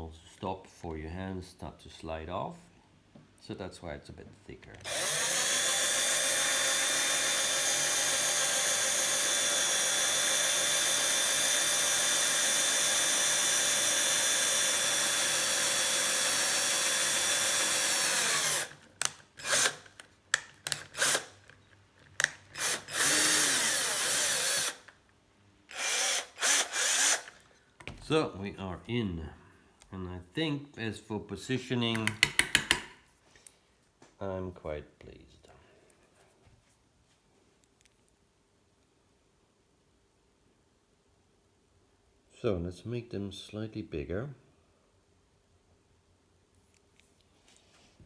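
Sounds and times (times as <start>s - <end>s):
electric drill boring: 4.8s - 21.4s, 22.2s - 25.0s, 25.7s - 27.4s.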